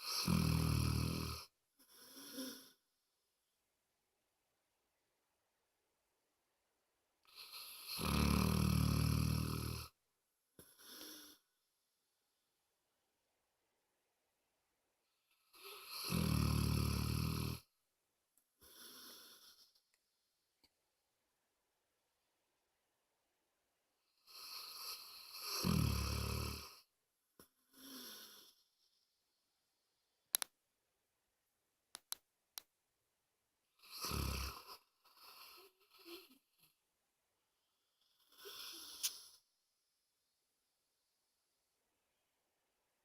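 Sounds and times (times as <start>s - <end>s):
dog snoring: 0.0s - 2.8s, 7.3s - 10.0s, 10.6s - 11.4s, 15.5s - 17.7s, 18.6s - 19.7s, 24.2s - 26.9s, 27.7s - 28.6s, 33.8s - 36.4s, 38.0s - 39.4s.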